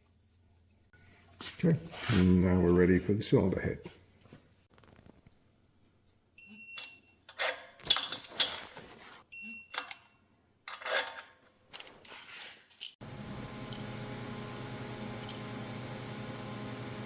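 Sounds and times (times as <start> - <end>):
short electronic beeps: 6.4 - 7.1, 9.3 - 10.0
metal engine parts clattering: 7.3 - 8.8, 10.7 - 12.0
steady mechanical hum: 13.0 - 17.0.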